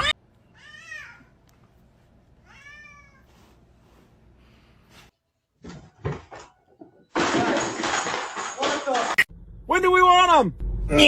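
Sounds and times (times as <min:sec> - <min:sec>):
cat meowing: 0:02.4 - 0:03.3.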